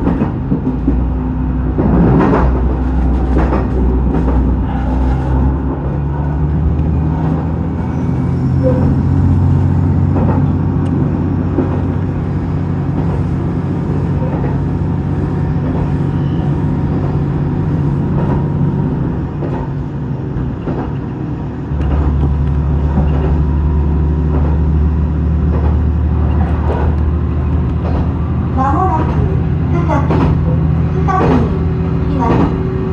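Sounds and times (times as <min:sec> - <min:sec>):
railcar engine drone: 0:00.0 - 0:32.9
wheels clicking over rails: 0:09.7 - 0:32.9.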